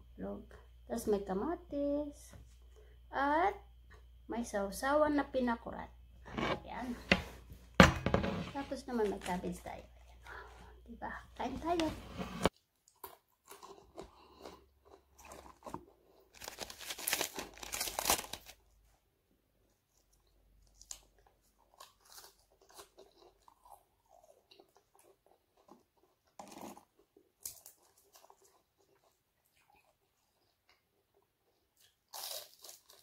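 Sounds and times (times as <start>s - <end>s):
person chewing and crunching food: 12.5s - 18.6s, 19.6s - 33.0s.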